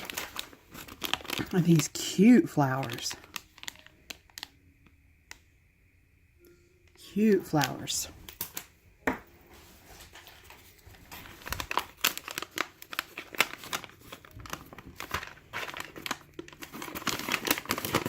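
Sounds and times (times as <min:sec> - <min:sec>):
packaging crinkling: 0:00.0 - 0:04.6, 0:09.6 - 0:18.0.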